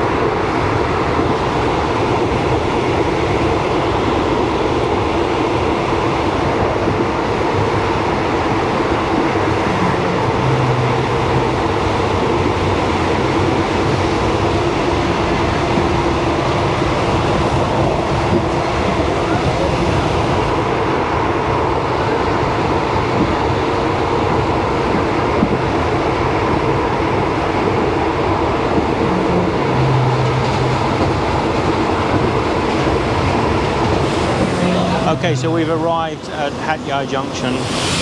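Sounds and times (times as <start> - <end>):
train rumbling: 0.0 - 38.0
constant hum: 28.3 - 37.6.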